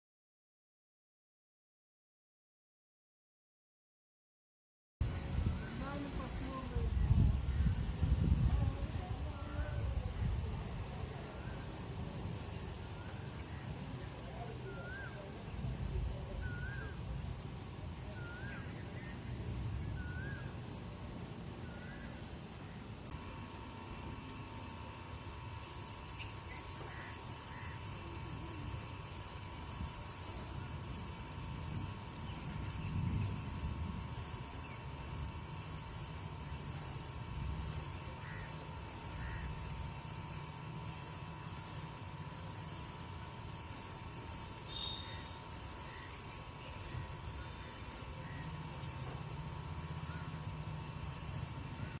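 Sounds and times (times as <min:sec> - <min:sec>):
faint steady hum: 0:05.0 - 0:52.0
bird whistled calls: 0:11.4 - 0:12.3, 0:14.3 - 0:15.2, 0:16.4 - 0:17.3, 0:18.2 - 0:20.5, 0:21.6 - 0:23.2, 0:24.6 - 0:49.2, 0:49.8 - 0:51.6
high rhythmic chirping: 0:11.4 - 0:12.9, 0:24.5 - 0:52.0.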